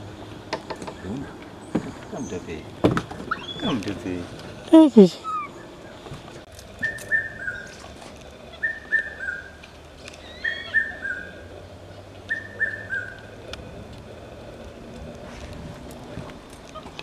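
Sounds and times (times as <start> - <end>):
bird whistling descending notes: 3.3 - 3.7, 5.2 - 5.7, 6.8 - 7.7, 8.6 - 9.6, 10.2 - 11.4, 12.3 - 13.2.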